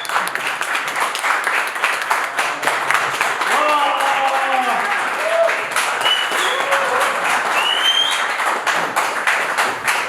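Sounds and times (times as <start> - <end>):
spectators applauding and cheering: 0.0 - 10.0
high shouts: 3.5 - 7.7.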